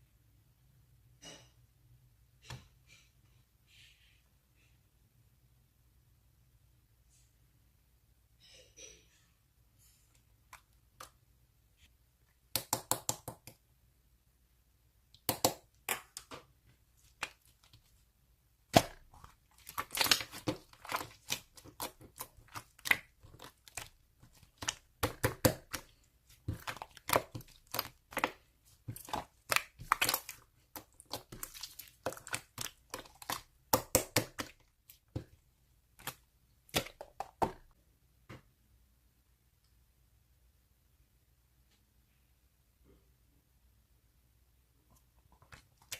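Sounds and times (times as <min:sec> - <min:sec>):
slime crackling and popping: 0:18.7 - 0:35.3.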